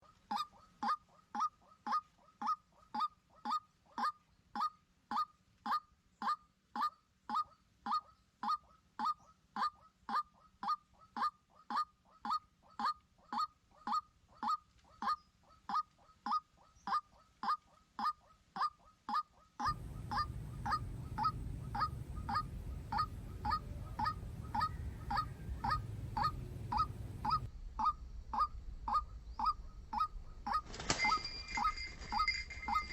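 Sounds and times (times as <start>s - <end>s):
bird calling short falling notes: 19.6s - 32.9s
low background rumble: 19.6s - 32.9s.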